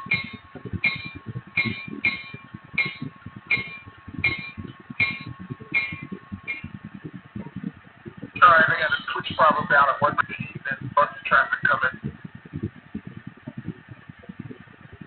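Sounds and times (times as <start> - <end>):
thin steady whine: 0.0 - 15.0.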